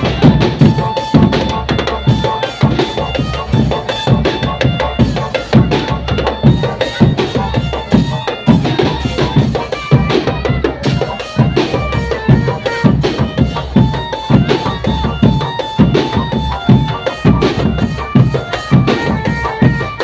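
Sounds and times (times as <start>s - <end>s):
bass and snare drums beating: 0.0s - 20.0s
melody of held notes: 0.0s - 20.0s.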